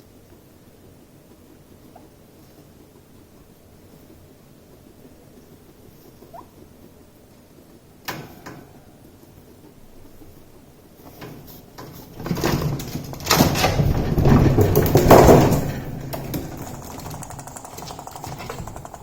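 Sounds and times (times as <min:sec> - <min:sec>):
guinea pigs scrambling and bumping: 0:00.0 - 0:19.0.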